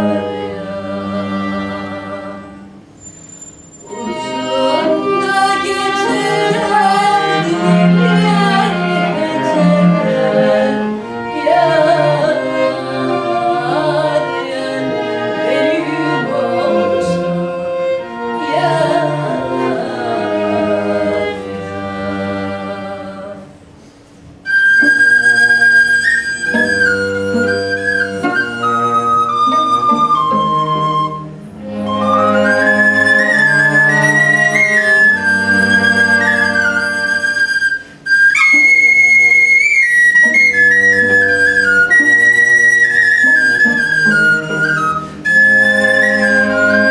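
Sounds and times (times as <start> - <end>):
violin viola and cello: 0.0 - 23.6, 24.3 - 46.9
woman singing: 3.9 - 17.5, 18.4 - 23.5
flute high held note: 24.4 - 46.9.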